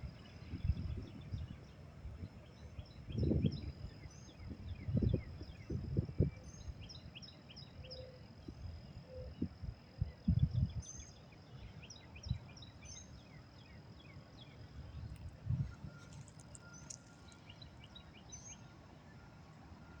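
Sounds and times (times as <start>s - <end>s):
birds chirping: 10.9s - 18.7s.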